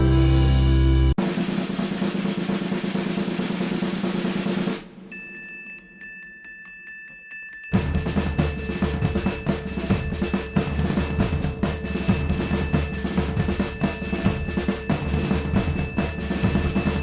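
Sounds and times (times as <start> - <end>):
music with fast drumming: 1.2 - 5.2, 7.7 - 17.0
held tones: 5.0 - 17.0.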